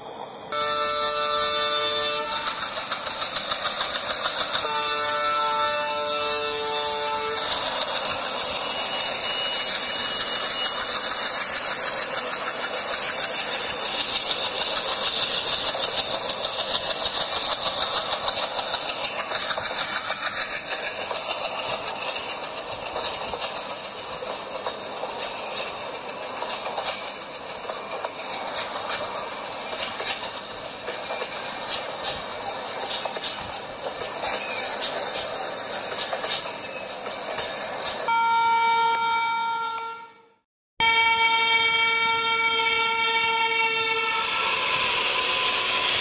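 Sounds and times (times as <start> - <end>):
diesel locomotive engine: 0.0 - 46.0
coaches rattling on rails: 2.1 - 38.2
wheel clicks over rail joints: 10.4 - 38.0.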